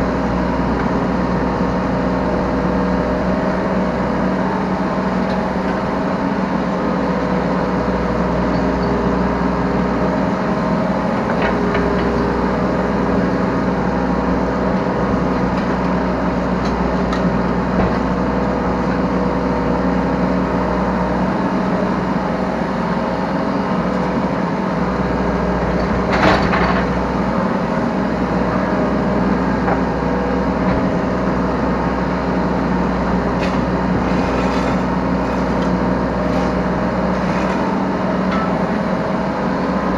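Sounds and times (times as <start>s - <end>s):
diesel engine running under work: 0.0s - 39.9s.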